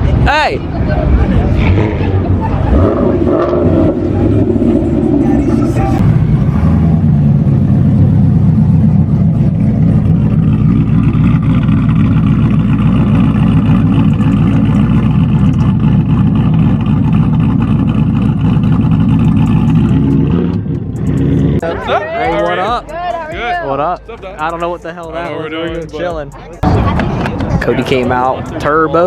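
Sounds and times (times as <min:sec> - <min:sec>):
car engine running steadily: 0:02.1 - 0:21.7.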